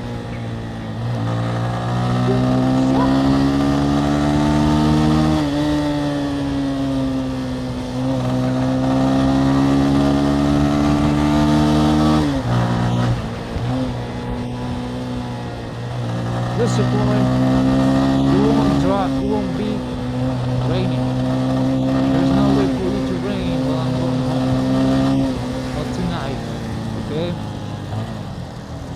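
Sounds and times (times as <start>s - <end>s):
motorcycle engine accelerating: 0.0s - 28.9s.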